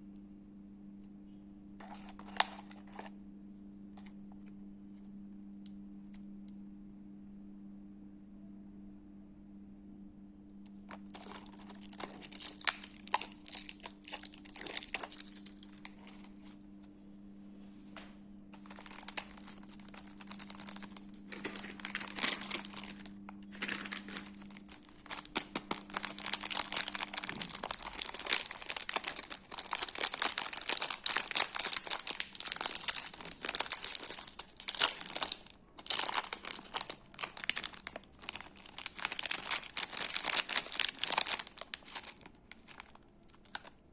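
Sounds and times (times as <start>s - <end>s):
faint low hum: 0.0s - 43.9s
wrappers crinkling: 1.8s - 3.1s, 10.9s - 16.6s, 18.6s - 43.9s.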